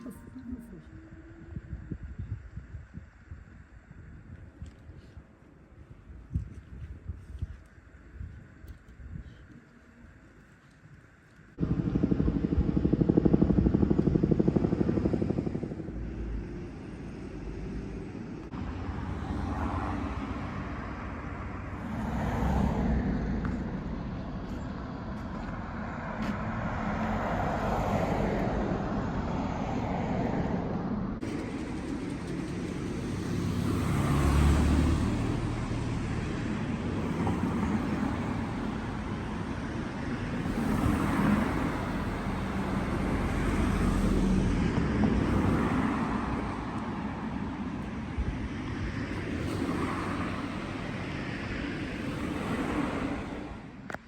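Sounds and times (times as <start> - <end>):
cars passing: 11.5 - 54.0.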